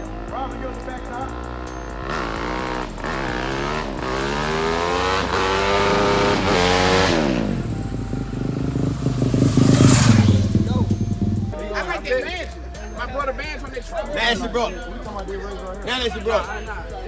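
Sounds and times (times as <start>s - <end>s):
dirt bike engine accelerating: 0.0s - 13.6s
low engine rumble: 0.0s - 17.0s.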